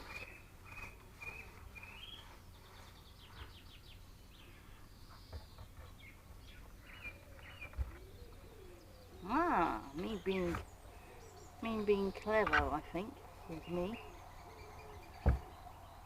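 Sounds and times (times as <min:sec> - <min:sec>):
faint steady background noise: 0:00.0 - 0:16.0
small birds chirping and singing: 0:00.0 - 0:16.0.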